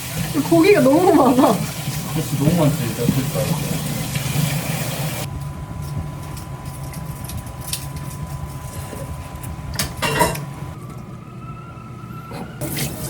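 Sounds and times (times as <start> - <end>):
tap water running: 0.0 - 5.3, 12.6 - 13.0
low mechanical hum: 0.0 - 13.0.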